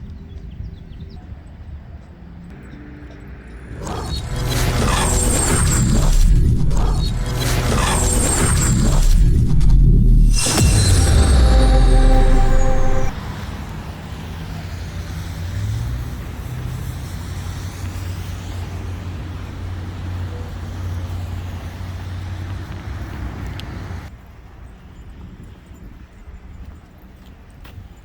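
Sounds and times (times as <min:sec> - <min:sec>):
traffic with engine hum: 0:13.2 - 0:28.0.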